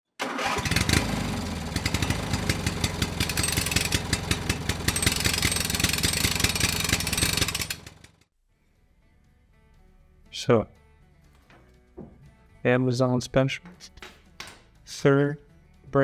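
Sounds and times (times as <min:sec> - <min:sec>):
vehicle engine idling: 0:00.4 - 0:08.2.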